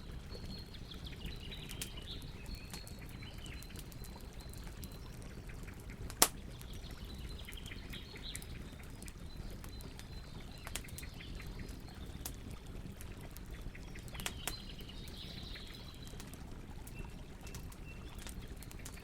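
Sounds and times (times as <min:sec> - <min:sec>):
campfire burning: 0:00.0 - 0:19.0
fire pops and snaps: 0:01.6 - 0:05.0, 0:05.9 - 0:06.8, 0:07.4 - 0:11.1, 0:14.0 - 0:15.2.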